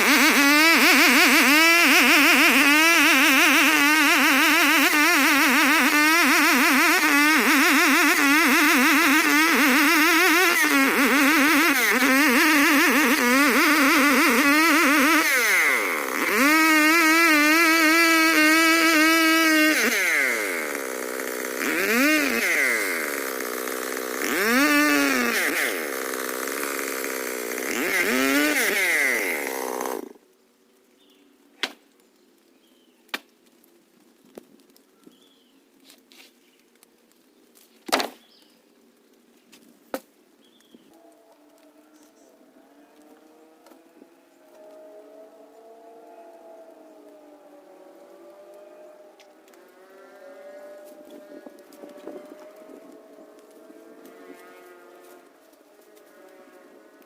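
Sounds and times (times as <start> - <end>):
chainsaw running hard: 0.0 - 30.2, 47.4 - 57.0.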